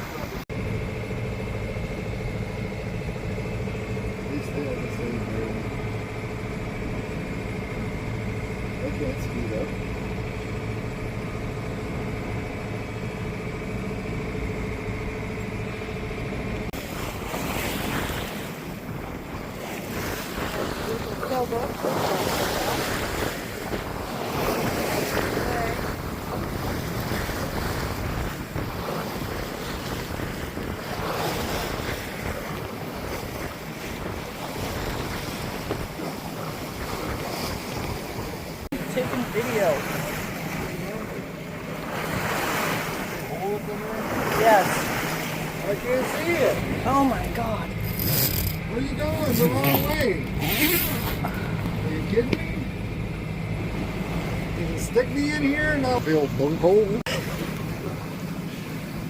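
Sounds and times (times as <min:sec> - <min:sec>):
boat engine running: 0:00.0 - 0:59.0
waves rushing past hull: 0:00.0 - 0:59.0
wind buffeting microphone: 0:14.9 - 0:43.3.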